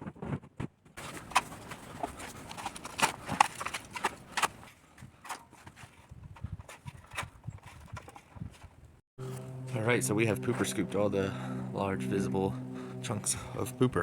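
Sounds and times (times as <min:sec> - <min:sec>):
pooper scooper and rake scraping ground: 0:01.0 - 0:06.0.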